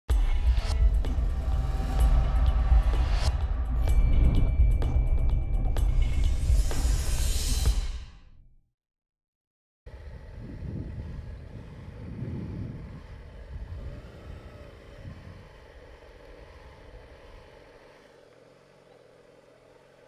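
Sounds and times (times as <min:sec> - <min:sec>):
wind buffeting microphone: 0:09.9 - 0:17.5
motorcycle engine idling: 0:09.9 - 0:20.0.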